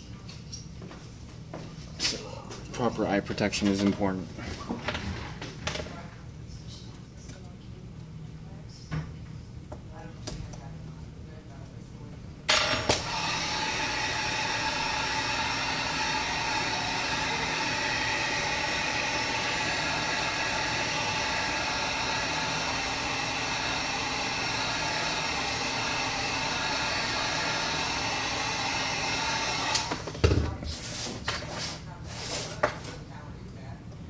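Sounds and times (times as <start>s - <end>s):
heat gun blowing with whine: 12.9s - 30.1s.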